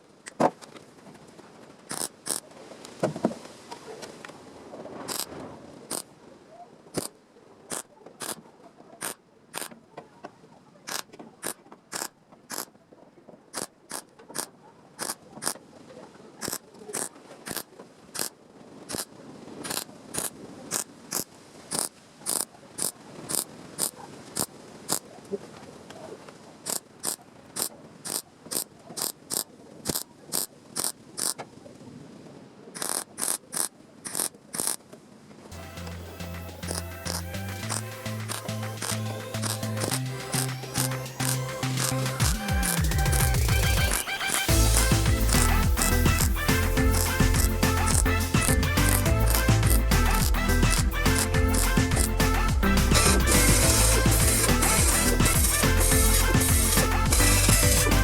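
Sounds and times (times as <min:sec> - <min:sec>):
sharp clicks: 0:01.9 - 0:02.4, 0:05.1 - 0:05.3, 0:07.7 - 0:08.4, 0:09.0 - 0:09.8, 0:10.9 - 0:12.7, 0:13.5 - 0:15.6, 0:16.4 - 0:18.3, 0:18.9 - 0:25.0, 0:26.7 - 0:31.4, 0:32.8 - 0:34.8, 0:36.6 - 0:46.4.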